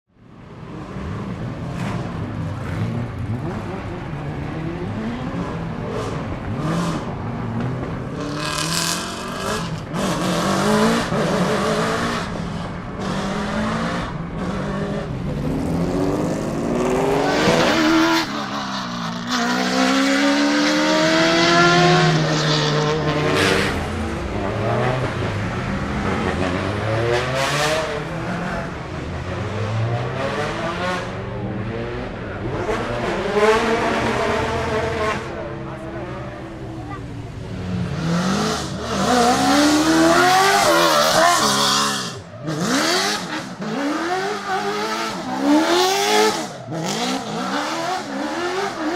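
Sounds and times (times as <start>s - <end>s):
truck engine revving: 37.5s - 48.9s.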